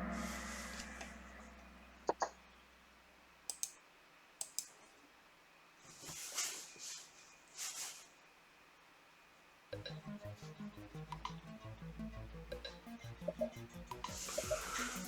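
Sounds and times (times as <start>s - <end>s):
sharp clicks in pairs: 3.5s - 3.8s, 4.4s - 4.8s
soft rustling swishes: 5.8s - 8.3s.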